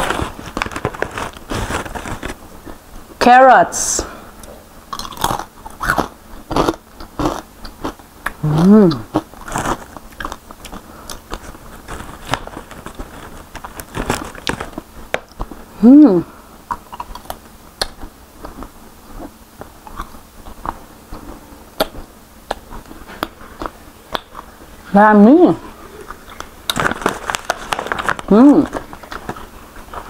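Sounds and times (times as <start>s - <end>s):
chewing and crunching chips: 0.0s - 2.8s, 4.9s - 15.8s, 16.6s - 24.8s, 25.6s - 30.0s
person humming mmm: 8.3s - 9.2s, 15.7s - 16.4s.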